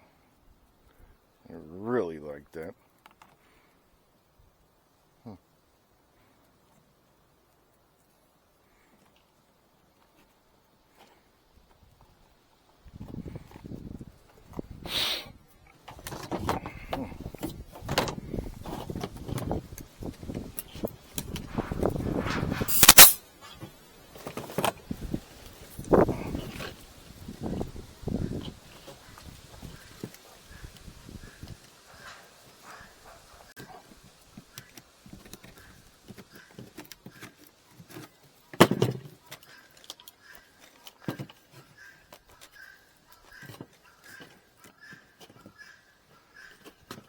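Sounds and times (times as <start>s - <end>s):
loud sharp crack: 22.2s - 23.2s.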